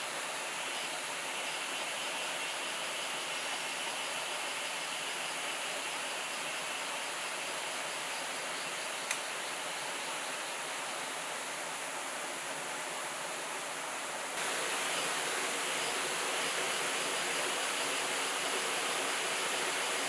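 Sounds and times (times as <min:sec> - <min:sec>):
river rushing: 0:09.5 - 0:20.0.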